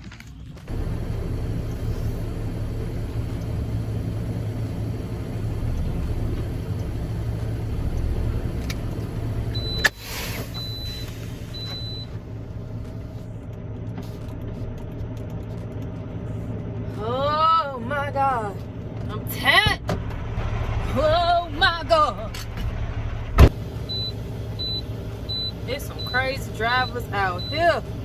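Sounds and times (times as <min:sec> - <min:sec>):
truck engine rumbling: 0:00.0 - 0:28.0
air hiss: 0:09.8 - 0:11.5.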